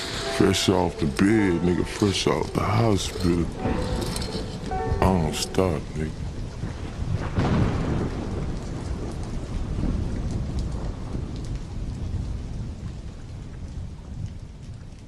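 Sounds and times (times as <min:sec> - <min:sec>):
heavy rain: 0:00.0 - 0:15.0
low rumble of thunder: 0:03.4 - 0:15.0.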